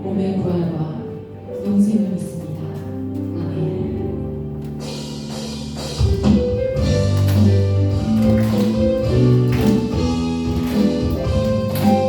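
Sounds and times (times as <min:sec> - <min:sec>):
praise band playing: 0:03.4 - 0:12.0
drums: 0:04.6 - 0:12.0.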